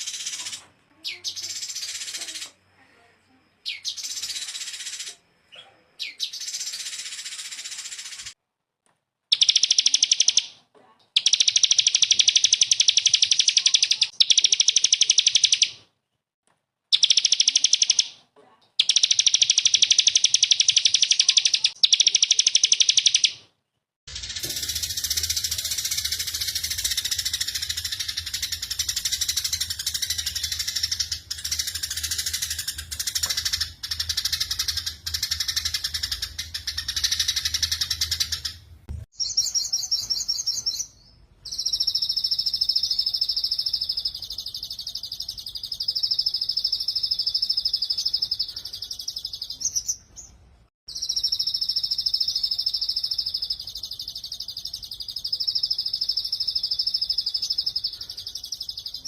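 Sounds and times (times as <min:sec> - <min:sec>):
bird twittering song: 0:00.0 - 0:02.6, 0:03.6 - 0:08.4, 0:09.3 - 0:10.6, 0:11.2 - 0:15.8, 0:16.9 - 0:18.2, 0:18.8 - 0:23.4, 0:24.1 - 0:59.0
songbird rapid trill: 0:11.2 - 0:15.8, 0:16.9 - 0:18.1, 0:18.8 - 0:23.4, 0:24.1 - 0:38.6, 0:50.9 - 0:59.0.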